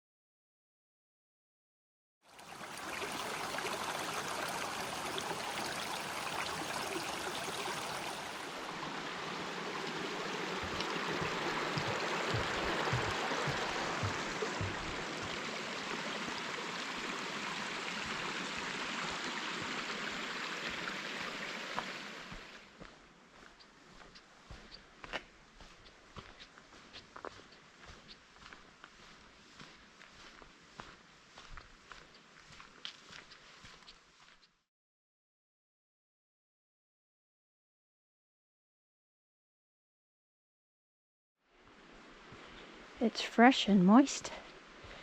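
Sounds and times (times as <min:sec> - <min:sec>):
creek water rushing: 0:02.3 - 0:22.8, 0:41.6 - 0:45.0
low thumps: 0:10.7 - 0:15.1.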